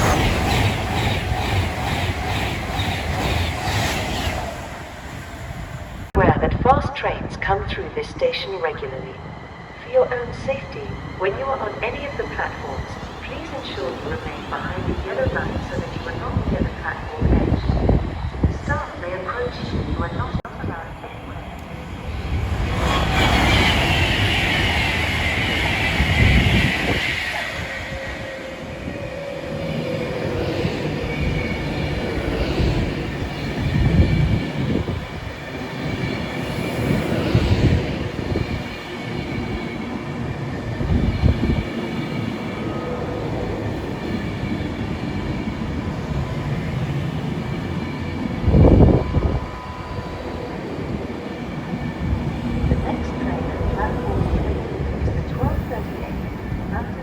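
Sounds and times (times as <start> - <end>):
train wheels on rails: 0.0 - 6.2, 21.2 - 57.0.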